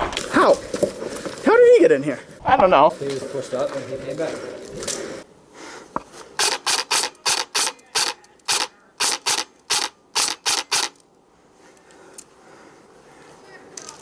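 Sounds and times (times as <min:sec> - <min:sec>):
airsoft gun shots: 0:06.4 - 0:11.0.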